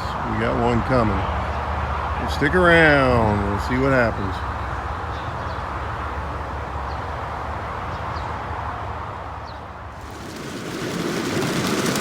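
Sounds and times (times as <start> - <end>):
steady rain: 10.0 - 12.0.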